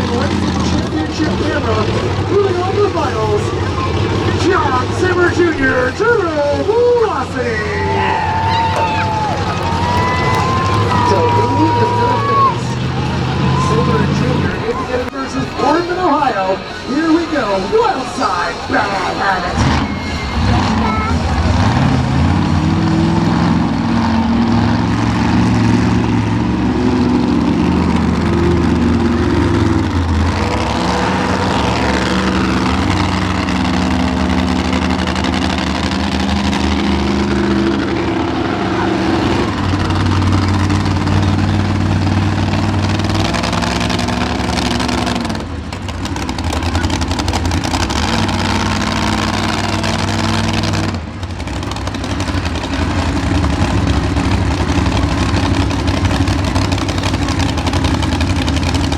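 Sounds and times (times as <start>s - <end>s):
monster truck engines revving: 0.0s - 58.9s.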